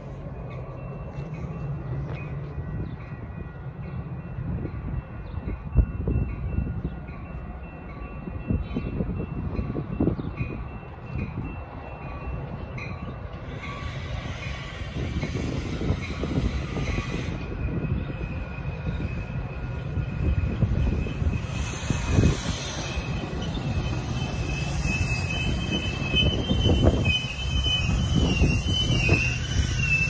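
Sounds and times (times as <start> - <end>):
train rumbling: 0.0 - 30.0
hiss: 21.4 - 25.4.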